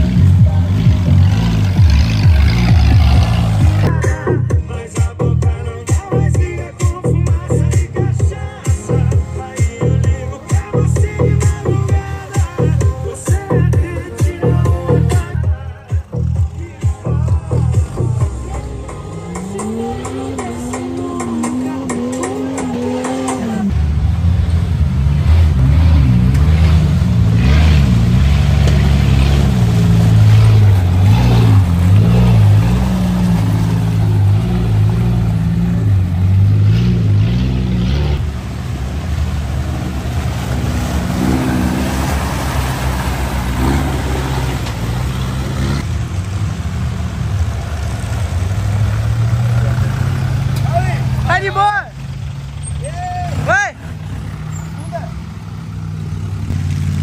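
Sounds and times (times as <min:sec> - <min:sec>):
engine revving: 0:00.0 - 0:04.5, 0:17.4 - 0:57.0
background music: 0:00.0 - 0:23.7.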